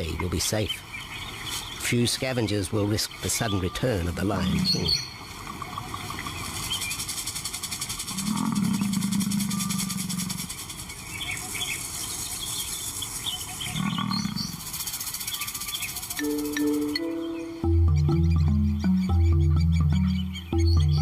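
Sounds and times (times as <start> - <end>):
faint birds chirping: 0.0 - 21.0
lion calling low: 4.3 - 5.0, 8.1 - 10.5.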